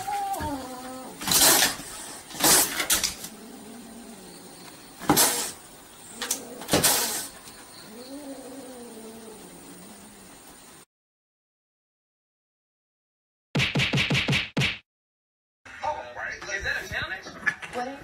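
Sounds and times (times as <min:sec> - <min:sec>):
kitten hissing and spitting: 0:01.2 - 0:03.4, 0:05.0 - 0:05.6, 0:06.2 - 0:07.4.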